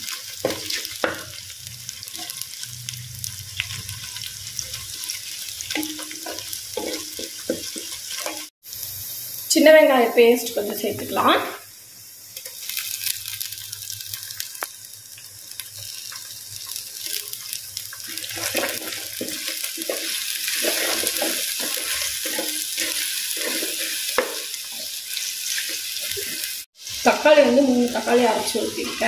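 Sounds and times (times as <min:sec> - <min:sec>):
spatula stirring and scraping: 0:00.0 - 0:08.5, 0:15.8 - 0:26.6
onions sizzling in hot oil: 0:00.0 - 0:29.0.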